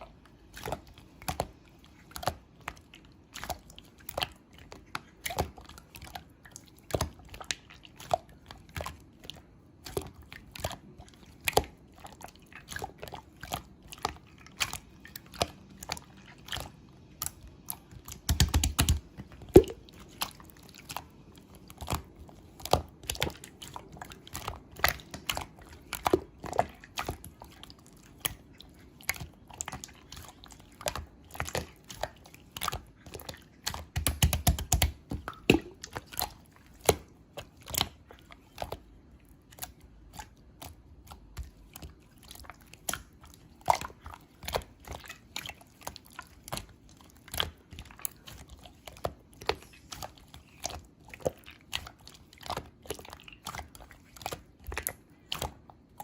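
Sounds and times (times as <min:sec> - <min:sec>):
slime clicking and popping: 0:16.6 - 0:20.2, 0:33.6 - 0:37.9.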